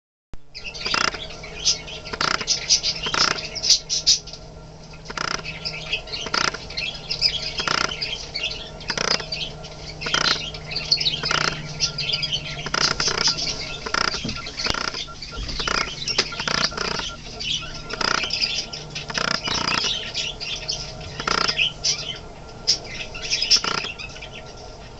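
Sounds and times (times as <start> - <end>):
steady low hum: 0.4 - 24.9
budgerigars chattering: 0.6 - 24.9
short low repeating sound: 10.0 - 21.6.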